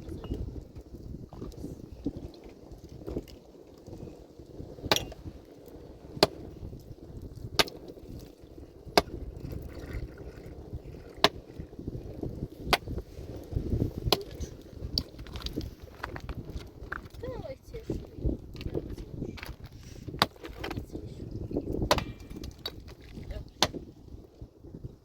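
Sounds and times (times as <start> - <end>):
hand tool striking rock: 4.8 - 5.2, 20.2 - 20.7, 21.8 - 22.8, 23.6 - 23.8.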